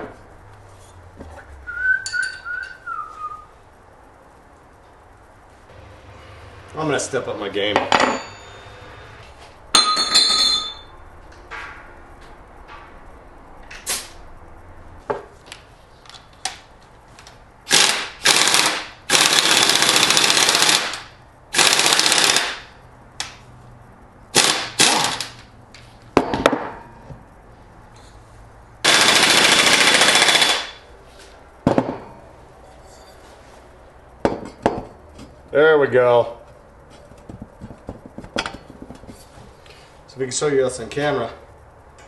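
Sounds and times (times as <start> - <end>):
impact wrench hammering: 17.7 - 22.7, 24.3 - 25.4, 28.9 - 30.8.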